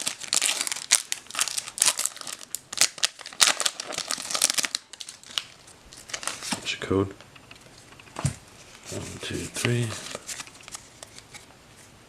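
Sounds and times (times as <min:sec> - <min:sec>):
foil wrapper crinkling: 0:00.0 - 0:06.6, 0:08.8 - 0:11.4.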